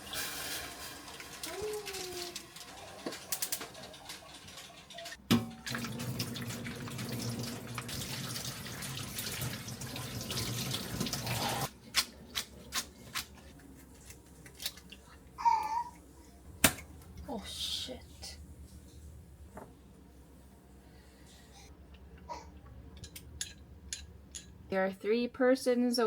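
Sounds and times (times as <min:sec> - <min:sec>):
tap running water into sink: 0:00.0 - 0:11.6.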